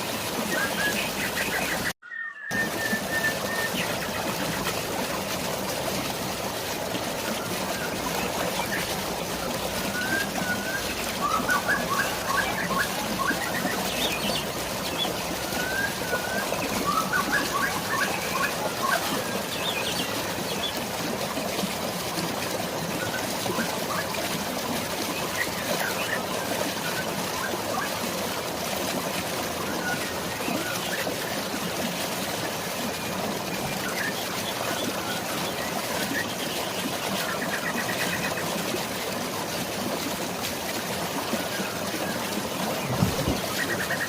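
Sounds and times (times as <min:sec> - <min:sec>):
drizzling rain: 0:00.0 - 0:36.3, 0:36.9 - 0:44.0
flowing water: 0:00.0 - 0:44.0
birds chirping and whistling: 0:00.4 - 0:04.7, 0:09.6 - 0:20.8.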